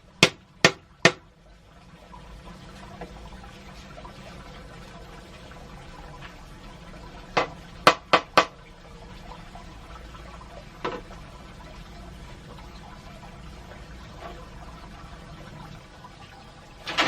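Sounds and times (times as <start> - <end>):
water noise: 0.0 - 17.0
sharp knocks: 0.2 - 1.2, 7.4 - 8.6.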